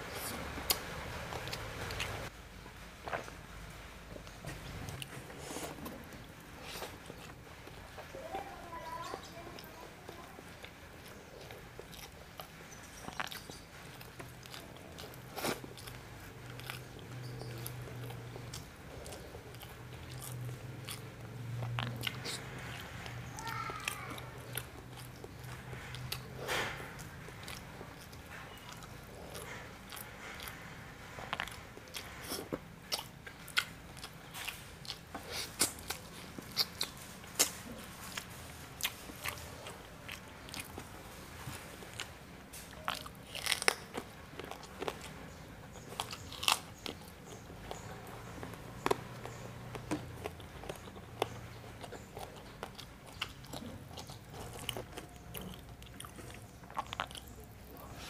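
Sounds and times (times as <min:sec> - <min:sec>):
person chewing with crunches: 0:00.0 - 0:02.3, 0:03.0 - 0:03.5, 0:04.1 - 0:58.0.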